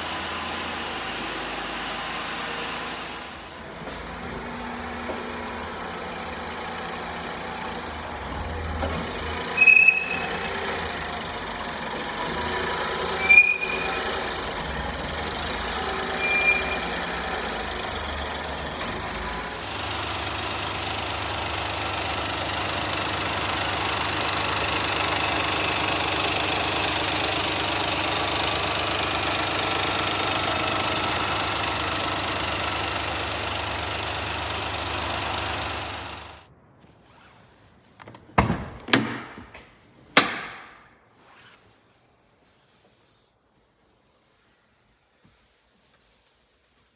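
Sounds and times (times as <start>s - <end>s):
truck engine running: 0.0s - 36.5s
high-pitched squeaks: 9.0s - 11.4s, 12.6s - 14.8s, 15.6s - 17.5s.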